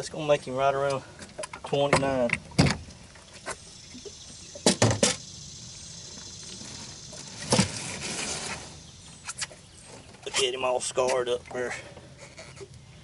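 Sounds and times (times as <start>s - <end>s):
faint high hiss: 1.6s - 11.9s
short knocks and clunks: 4.6s - 5.2s.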